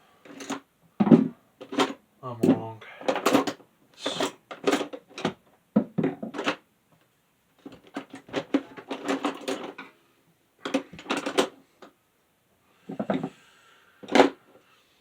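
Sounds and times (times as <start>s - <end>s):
small hard parts clattering: 0.2s - 6.6s, 7.6s - 10.0s, 10.6s - 11.9s, 14.0s - 14.5s.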